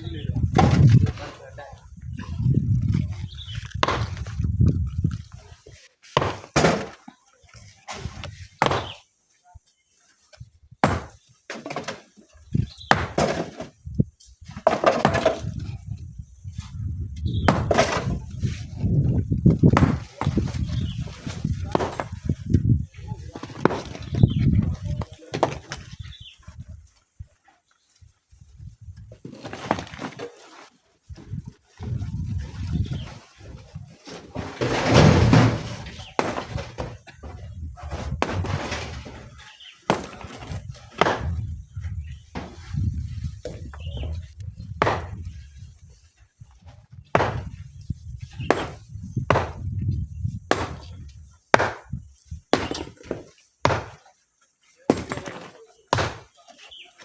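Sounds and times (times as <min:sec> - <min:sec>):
rocks knocking together: 0:03.5 - 0:05.3
rocks crashing and clattering: 0:17.4 - 0:22.5, 0:29.1 - 0:30.7, 0:31.4 - 0:41.6, 0:47.2 - 0:47.6, 0:54.9 - 0:56.4
tumbling rock crash: 0:34.3 - 0:41.5.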